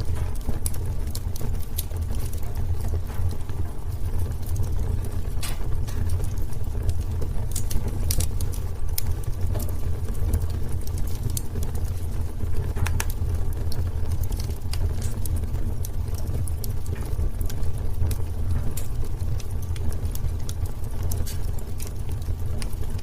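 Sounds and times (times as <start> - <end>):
low fire rumble: 0.0 - 23.0
wood fire crackling: 0.0 - 23.0.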